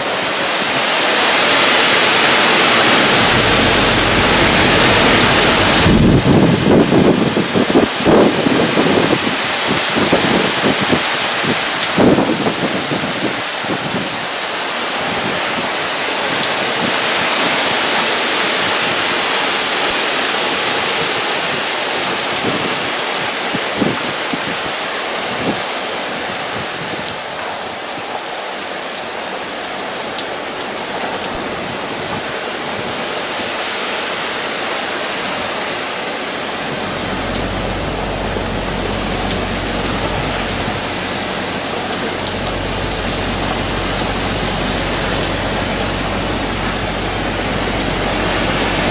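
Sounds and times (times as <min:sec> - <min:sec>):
heavy rain pouring: 0:00.0 - 0:48.9
low rumble: 0:02.3 - 0:07.4, 0:36.4 - 0:48.9.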